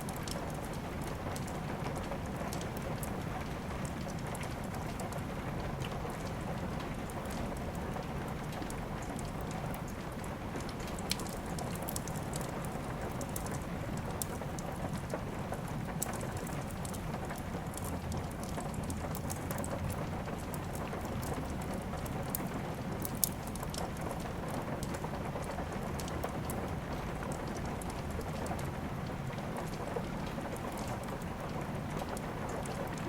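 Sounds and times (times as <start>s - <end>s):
steady rain: 0.0s - 33.0s
wood fire crackling: 10.6s - 33.0s.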